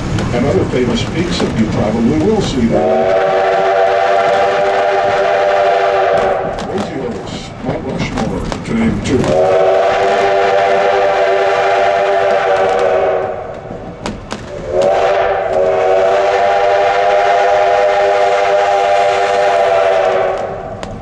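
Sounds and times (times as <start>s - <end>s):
steam locomotive whistle blasts: 2.7s - 6.6s, 9.4s - 13.6s, 14.6s - 20.7s.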